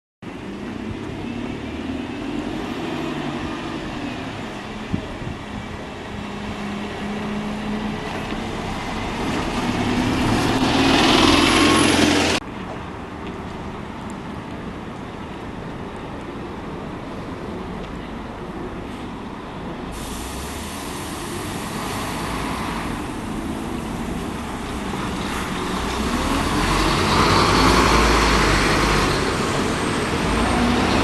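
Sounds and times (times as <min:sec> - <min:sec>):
street background: 0:00.2 - 0:31.0
bus engine running: 0:02.4 - 0:12.4, 0:17.4 - 0:31.0.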